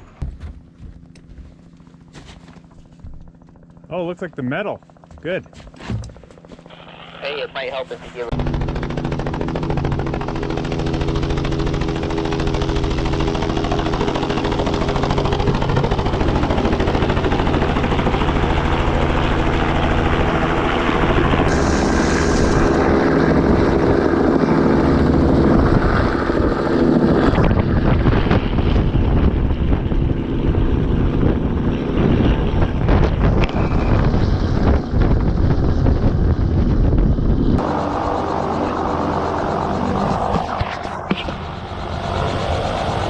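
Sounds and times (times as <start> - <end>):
helicopter rotor and engine: 0.0 - 43.0
wind buffeting microphone: 21.2 - 37.6.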